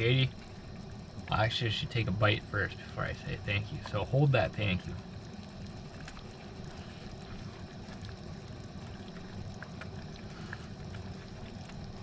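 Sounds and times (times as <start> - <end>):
gas burner rumbling: 0.0 - 12.0
faint clicks: 5.2 - 12.0.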